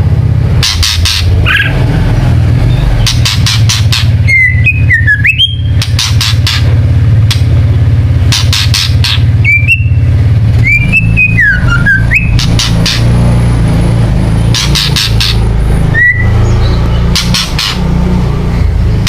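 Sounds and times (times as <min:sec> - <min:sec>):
loud steady low hum: 0:00.0 - 0:19.0
bird rattling calls: 0:00.6 - 0:01.9, 0:02.9 - 0:07.5, 0:08.2 - 0:10.0, 0:10.8 - 0:13.3, 0:14.4 - 0:17.9
bird whistled notes: 0:02.7 - 0:06.6, 0:08.4 - 0:13.0, 0:14.6 - 0:17.8.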